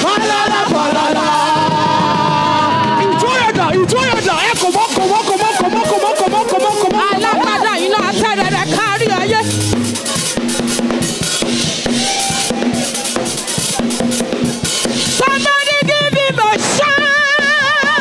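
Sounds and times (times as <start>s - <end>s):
person singing: 0.0s - 10.2s
drum kit beat: 0.0s - 18.0s
live band music: 3.0s - 18.0s.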